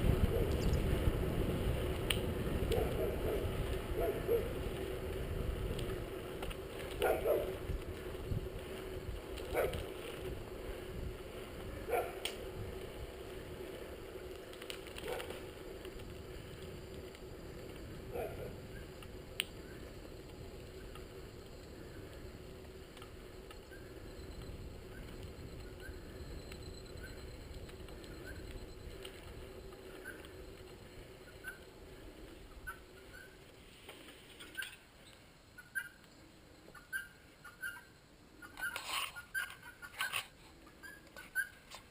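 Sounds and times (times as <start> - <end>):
wind buffeting microphone: 0.0 - 20.6
steady hum: 0.0 - 34.4
road noise: 0.0 - 34.9.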